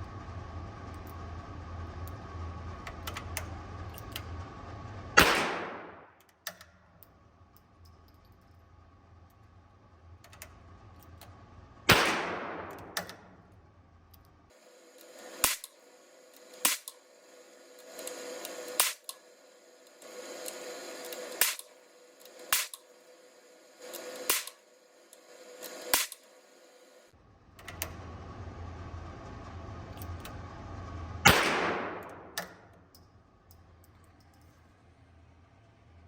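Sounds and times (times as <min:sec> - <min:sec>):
loud gunshot with ringing: 0:05.2 - 0:06.0, 0:11.9 - 0:12.8, 0:31.3 - 0:32.2
sharp gunshot cracks: 0:05.2 - 0:06.1, 0:11.9 - 0:13.0, 0:15.4 - 0:15.7, 0:16.6 - 0:16.9, 0:22.5 - 0:22.8, 0:31.3 - 0:32.4.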